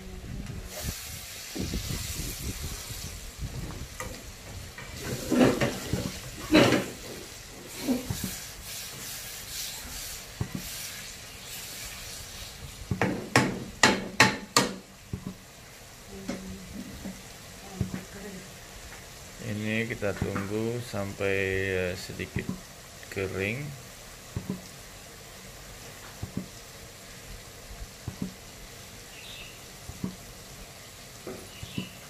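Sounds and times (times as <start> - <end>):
food sizzling in hot oil: 0.2 - 32.0
spatula knocking against pan: 12.9 - 15.4.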